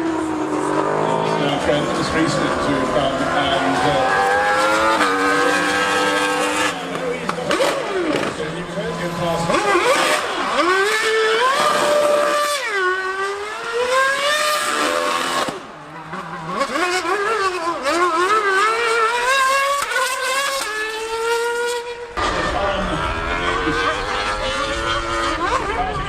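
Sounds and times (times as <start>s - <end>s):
racing engine accelerating: 0.0s - 26.0s
low rumble: 22.2s - 26.0s.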